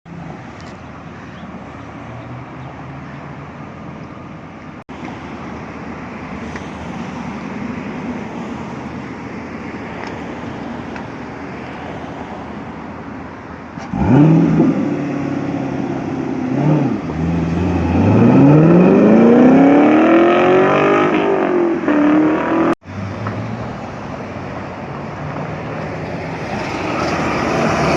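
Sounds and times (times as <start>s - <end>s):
road noise: 0.0s - 27.9s.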